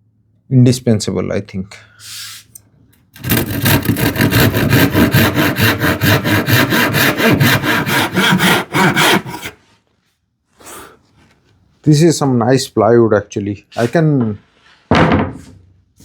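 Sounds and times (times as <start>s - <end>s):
handsaw cutting plywood: 3.2s - 9.6s.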